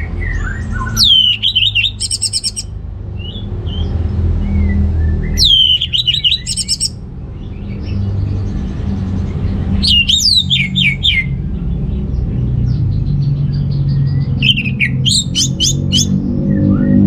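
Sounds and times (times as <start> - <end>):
thrush singing: 0.9 - 3.9, 5.4 - 7.0, 9.8 - 11.3, 14.4 - 16.2.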